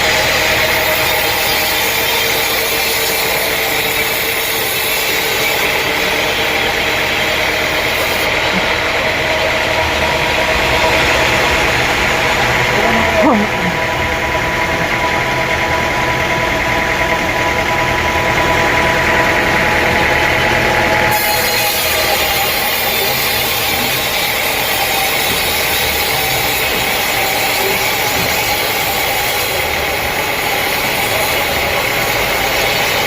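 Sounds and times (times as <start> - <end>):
sawmill machinery droning: 0.0 - 33.0.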